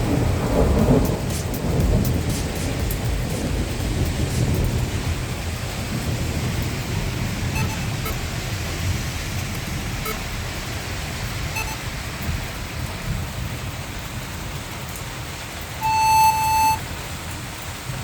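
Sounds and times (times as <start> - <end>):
steady rain: 0.0 - 18.0
single-pitched beep: 7.6 - 8.2, 9.6 - 10.2, 11.6 - 11.8, 15.8 - 16.8.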